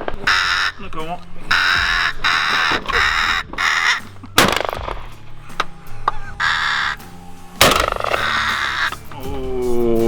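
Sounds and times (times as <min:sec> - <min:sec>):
crows cawing: 0:00.0 - 0:09.1
shotgun shot: 0:04.4 - 0:05.1, 0:07.6 - 0:08.4.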